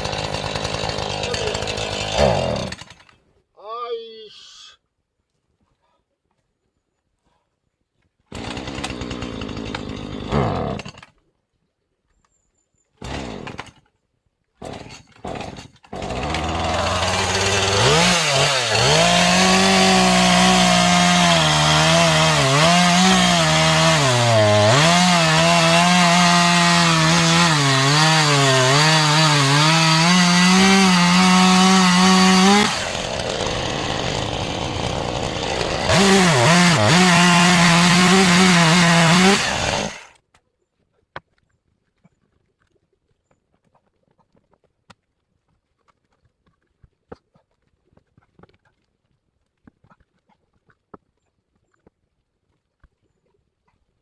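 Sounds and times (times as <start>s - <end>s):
chainsaw cutting wood: 0.0s - 3.2s, 8.3s - 11.2s, 13.0s - 13.9s, 14.6s - 40.2s.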